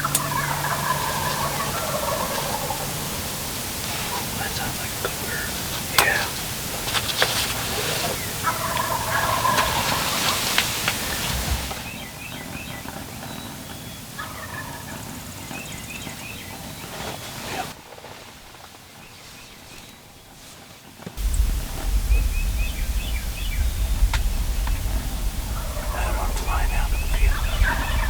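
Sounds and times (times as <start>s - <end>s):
turkey gobbling: 0.0s - 12.0s, 13.8s - 15.4s, 21.2s - 28.0s.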